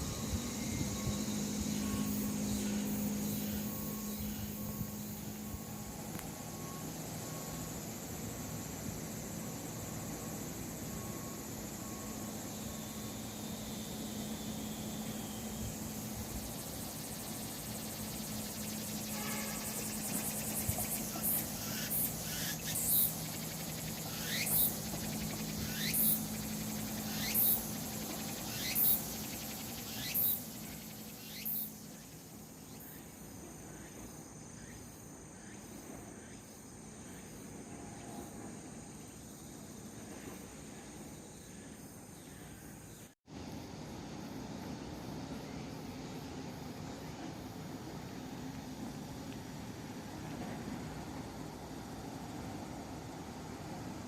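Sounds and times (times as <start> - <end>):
high-pitched insect drone: 0.0 - 54.0
loud sweeping insect calls: 0.0 - 54.0.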